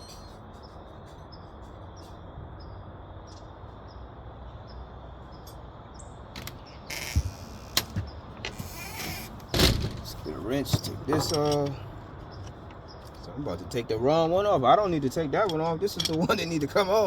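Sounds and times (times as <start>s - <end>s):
outdoor ambient hum: 0.0s - 17.0s
small birds chirping: 0.0s - 17.0s
rattling clatter: 9.5s - 11.8s.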